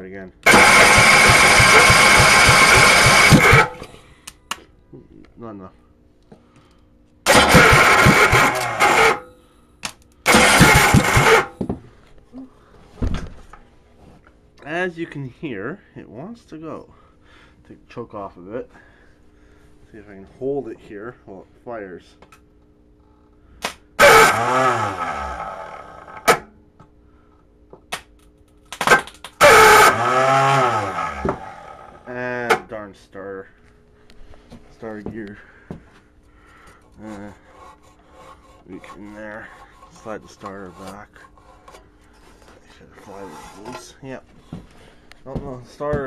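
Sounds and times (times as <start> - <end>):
small engine cranking with starter: 0.4 - 3.9, 7.3 - 9.3, 10.3 - 11.5, 24.0 - 26.3, 29.4 - 31.9.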